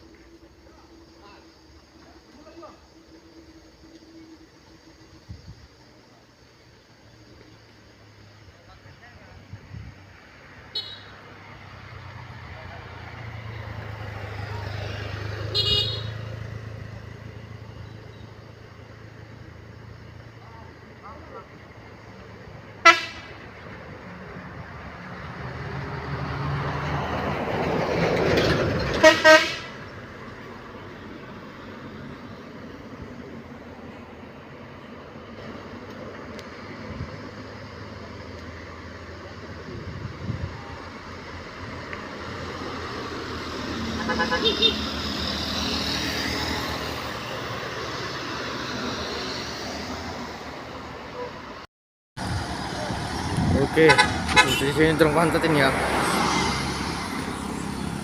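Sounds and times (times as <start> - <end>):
truck horn toots: 15.5 - 16.3, 22.8 - 23.4, 28.9 - 29.8, 43.9 - 44.9, 53.8 - 54.8.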